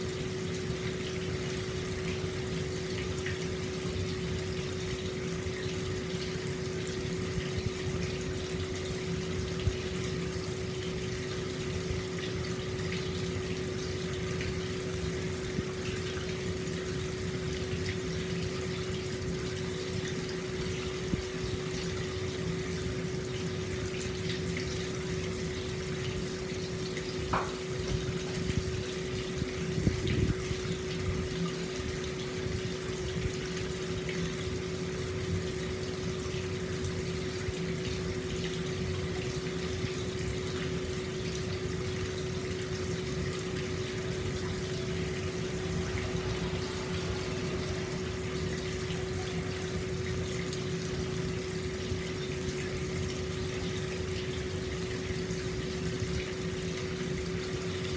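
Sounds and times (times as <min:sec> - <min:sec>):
water pouring into a bath: 0:00.0 - 0:57.9
steady hum: 0:41.3 - 0:57.0.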